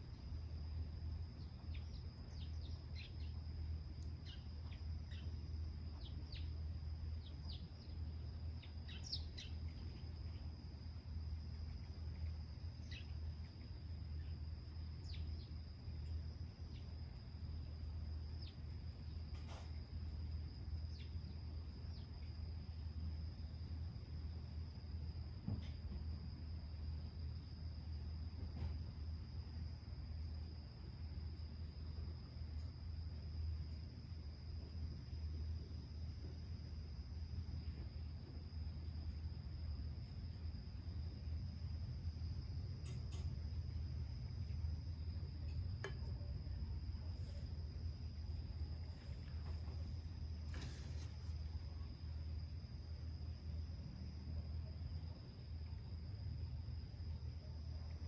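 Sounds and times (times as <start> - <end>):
insects trilling: 0.0 - 58.0
pulsing insect chirp: 0.0 - 58.0
faint ticks: 45.3 - 46.4.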